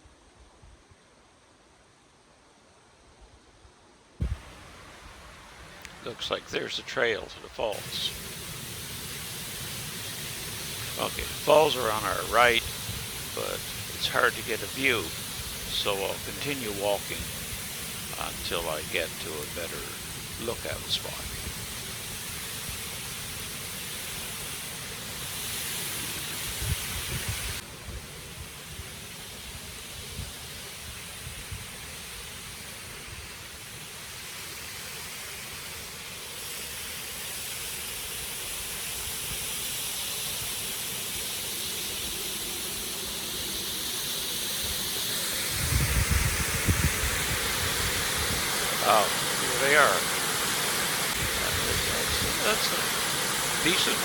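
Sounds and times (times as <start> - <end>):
waterfall and brook rushing: 4.2 - 54.0
wind buffeting microphone: 45.6 - 48.5.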